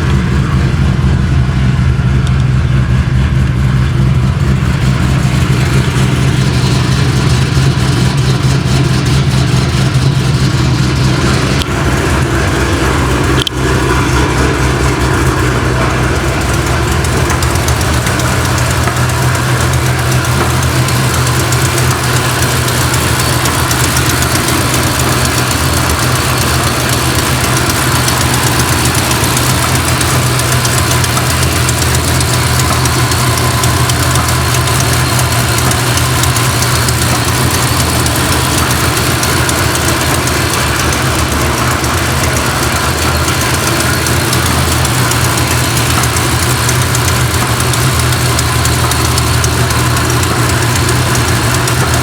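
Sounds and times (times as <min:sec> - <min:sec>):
car engine idling: 0:00.0 - 0:52.0.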